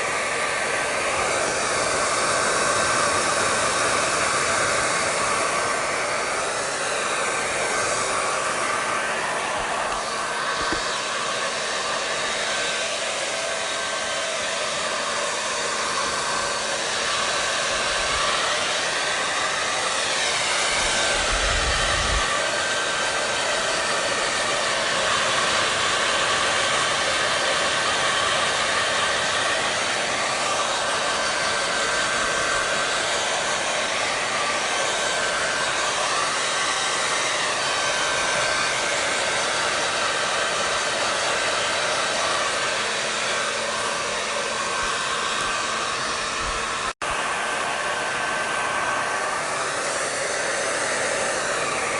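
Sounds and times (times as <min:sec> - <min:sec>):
hair dryer running: 0:00.0 - 0:51.9.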